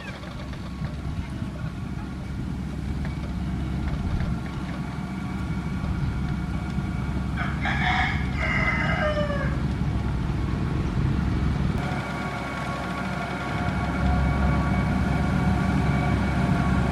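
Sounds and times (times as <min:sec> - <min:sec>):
diesel engine rumbling: 0:00.0 - 0:16.9
rooster crowing: 0:07.4 - 0:09.7.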